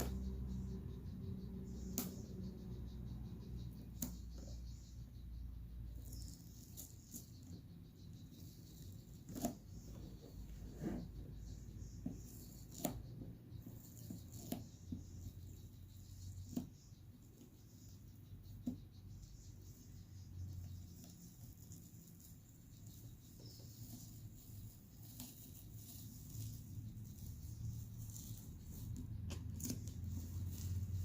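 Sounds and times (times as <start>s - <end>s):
sharp light clicks: 1.8s - 2.5s.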